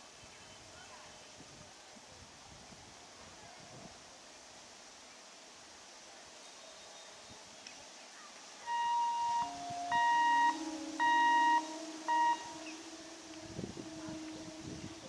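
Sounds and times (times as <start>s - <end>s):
faint train rumble: 8.7s - 15.0s
train horn blasts: 8.7s - 15.0s.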